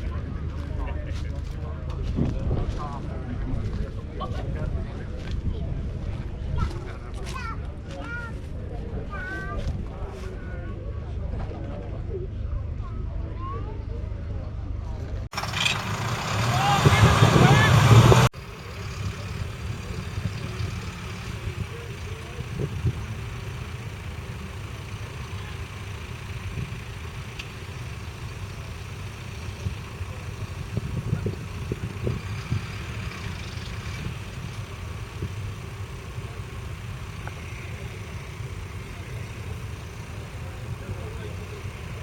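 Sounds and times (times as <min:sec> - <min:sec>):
diesel engine running: 0:15.2 - 0:42.0.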